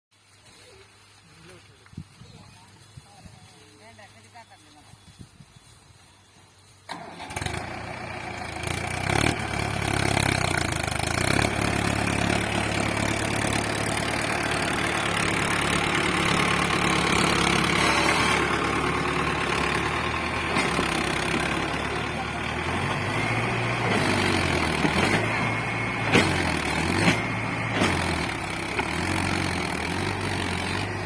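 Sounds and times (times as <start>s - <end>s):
tractor engine starting and running: 6.6s - 31.0s.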